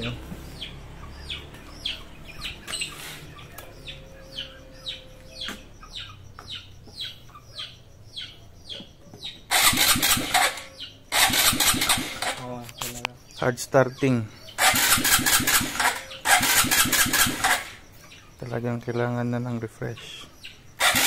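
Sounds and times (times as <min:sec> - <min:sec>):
bird chirping: 0:00.0 - 0:21.0
motorcycle engine cranking: 0:09.4 - 0:13.0, 0:14.6 - 0:17.9, 0:20.8 - 0:21.0.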